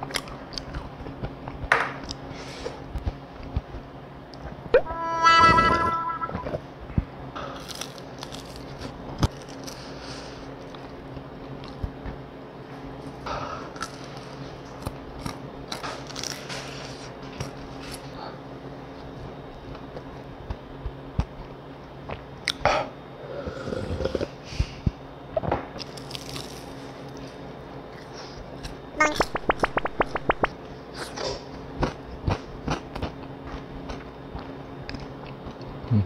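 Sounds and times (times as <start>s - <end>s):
fried chicken bitten and chewed: 7.4s - 12.2s, 25.8s - 27.3s.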